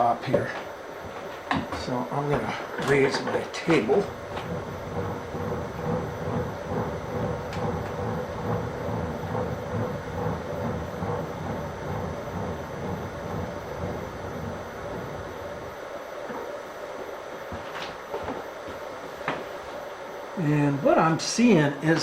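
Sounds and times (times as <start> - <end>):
milling machine table rumbling: 1.7 - 15.8.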